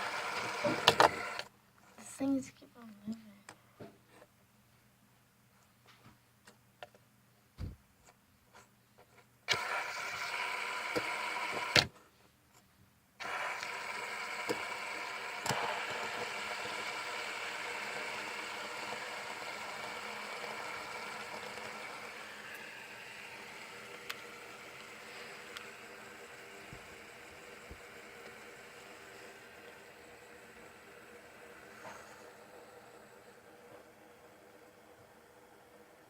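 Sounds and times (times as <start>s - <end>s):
fidget spinner whirring: 0.0s - 1.5s, 9.5s - 11.8s, 13.2s - 36.0s.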